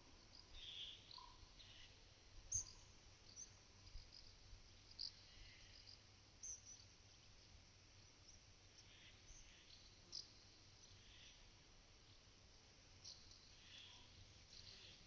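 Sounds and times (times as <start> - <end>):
quiet hiss: 0.0 - 15.0
small birds chirping: 0.2 - 12.2, 13.0 - 15.0.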